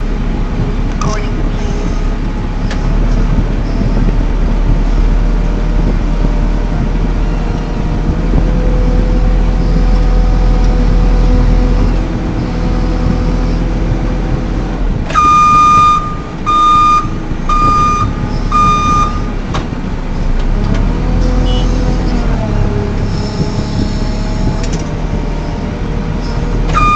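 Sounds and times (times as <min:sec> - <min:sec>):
diesel engine running: 0:00.0 - 0:26.9
reversing alarm beeping: 0:15.1 - 0:19.4.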